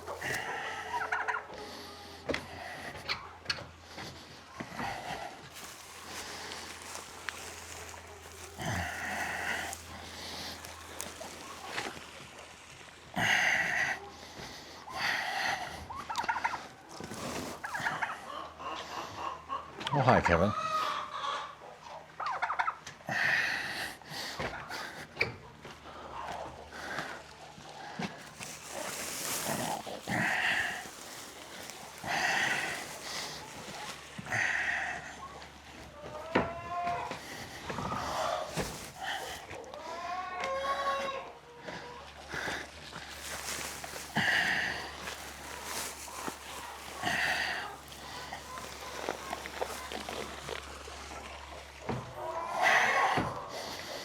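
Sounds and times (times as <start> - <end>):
dry rustle of hay: 0.0 - 1.2, 4.8 - 14.2, 16.0 - 18.1, 27.6 - 35.8, 37.3 - 39.6, 42.1 - 51.6
turkey gobbling: 0.0 - 1.7, 4.8 - 12.2, 15.9 - 23.0, 27.8 - 42.4, 43.1 - 50.6
farm animals calling: 0.0 - 54.0
goats and sheep bleating: 5.2 - 12.0, 27.9 - 35.2, 36.0 - 50.8.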